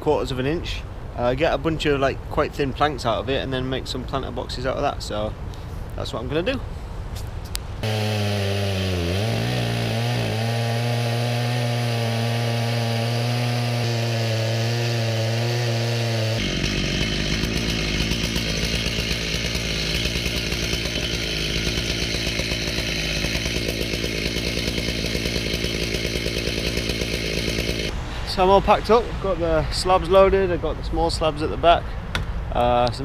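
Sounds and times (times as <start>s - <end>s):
chainsaw milling wood: 7.8s - 27.9s.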